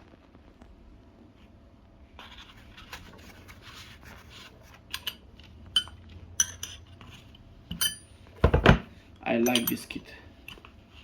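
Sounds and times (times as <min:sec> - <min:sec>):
metal drill bits clinking: 0:09.4 - 0:10.0.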